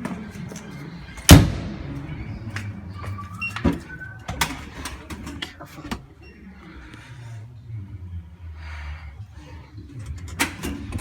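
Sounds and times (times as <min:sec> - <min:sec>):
door slamming with ringing tail: 0:01.3 - 0:02.5.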